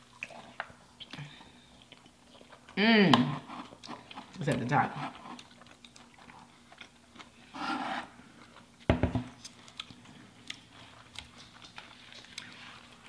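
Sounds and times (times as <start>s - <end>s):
chewing and lip smacking: 0.0s - 2.8s, 5.2s - 7.4s, 9.4s - 13.0s.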